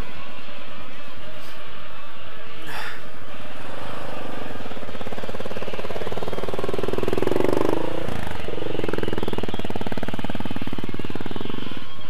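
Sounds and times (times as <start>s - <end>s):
motorcycle engine revving: 3.1s - 12.0s.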